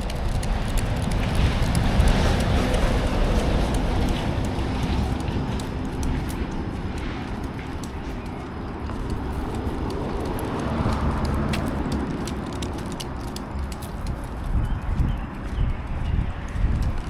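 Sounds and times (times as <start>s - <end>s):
footsteps on a trail: 0.0s - 17.0s
sharp crunches and ticks: 0.0s - 17.0s
steady low rumble: 0.0s - 17.0s.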